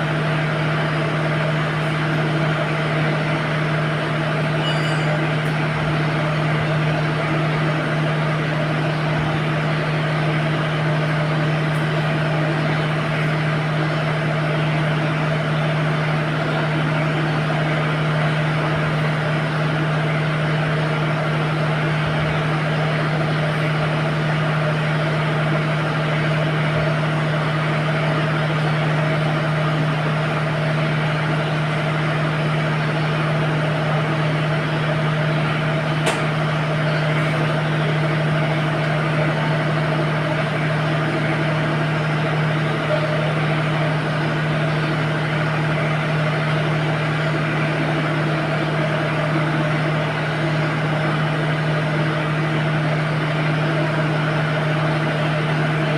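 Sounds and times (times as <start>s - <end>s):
sharp click: 36.0s - 36.3s.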